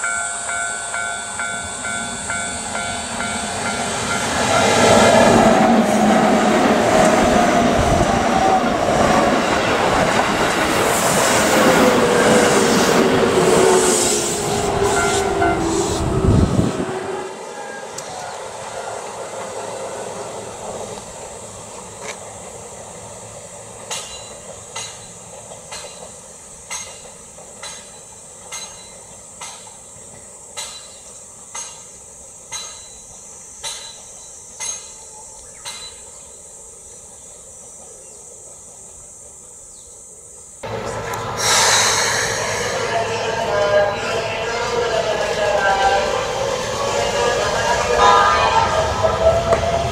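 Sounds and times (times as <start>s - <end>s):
electric train passing: 0.0s - 49.9s
faint high drone: 40.6s - 49.9s.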